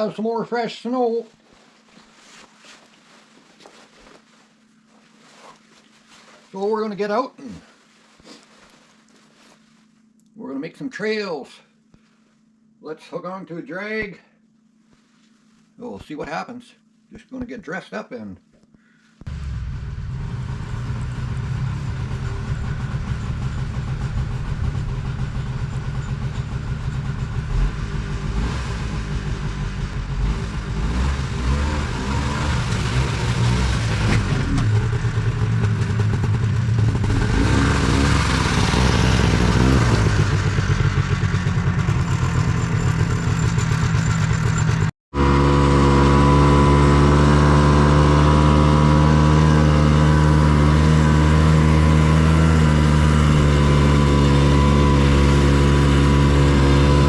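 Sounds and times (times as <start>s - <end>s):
small engine running: 19.3s - 57.0s.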